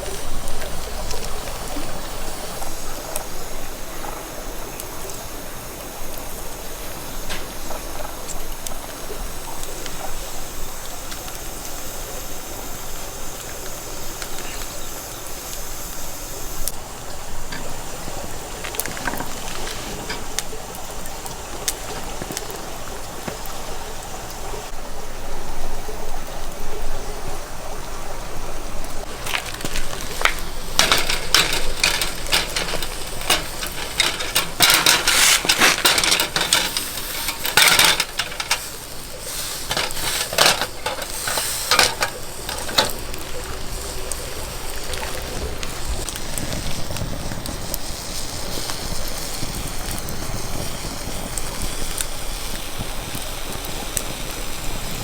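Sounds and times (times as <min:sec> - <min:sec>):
wood fire crackling and hissing: 0:00.0 - 0:55.0
metal scraping: 0:18.6 - 0:20.5, 0:29.0 - 0:43.1.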